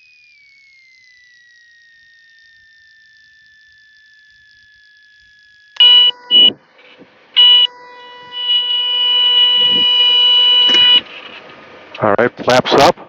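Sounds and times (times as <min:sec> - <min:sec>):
aircraft stall warning horn: 0:05.8 - 0:06.6, 0:07.4 - 0:11.2.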